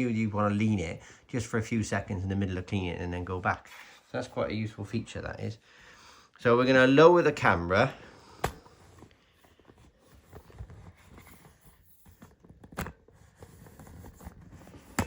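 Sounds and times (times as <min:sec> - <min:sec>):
camera handling rustles and scrapes: 0:08.4 - 0:15.0.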